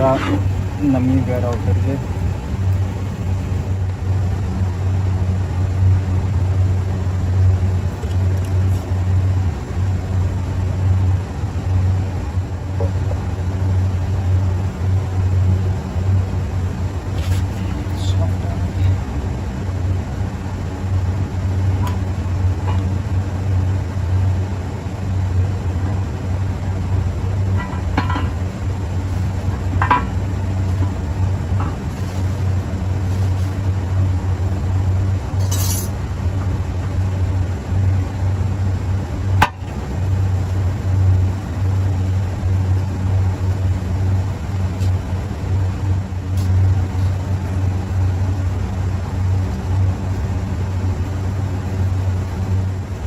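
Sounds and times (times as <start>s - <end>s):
steady low hum: 0.0s - 53.0s
light metallic clinks: 35.4s - 36.0s.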